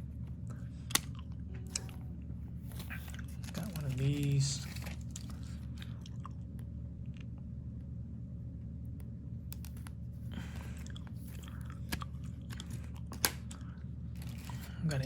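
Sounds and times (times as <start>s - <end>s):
steady low hum: 0.0s - 15.0s
rustle of cards: 2.6s - 5.6s, 14.1s - 15.0s.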